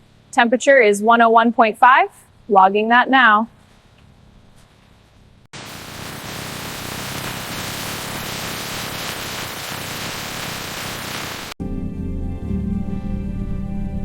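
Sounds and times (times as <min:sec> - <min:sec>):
steady static hiss: 0:04.4 - 0:11.6
music: 0:11.6 - 0:14.0.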